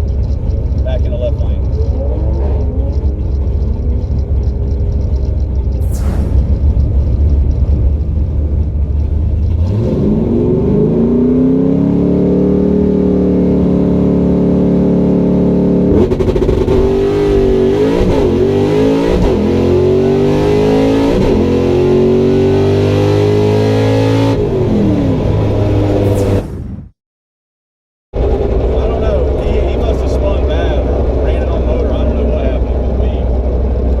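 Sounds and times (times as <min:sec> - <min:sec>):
drag racing car engine revving: 0:05.8 - 0:26.4.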